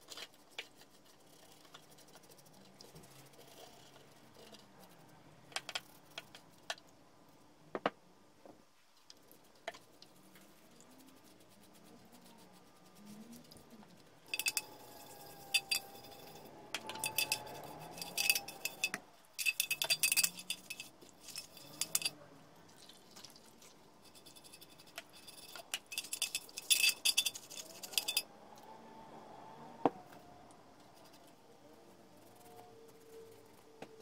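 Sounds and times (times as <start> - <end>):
small metal parts clinking: 14.3 - 22.2, 24.0 - 28.3.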